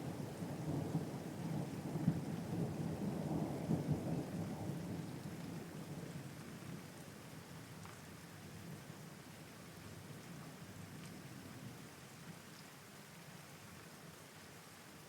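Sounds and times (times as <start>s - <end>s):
thunder rumbling: 0.0s - 5.2s
steady rain: 0.0s - 15.0s.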